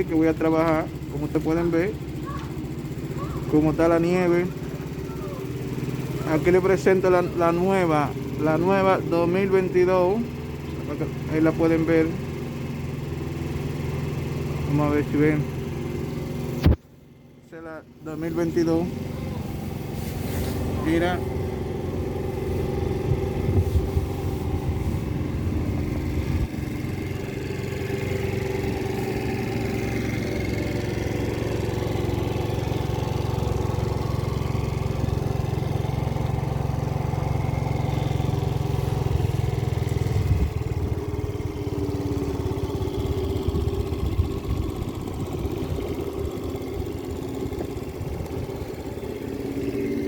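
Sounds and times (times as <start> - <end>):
small motorbike engine idling: 0.0 - 50.0.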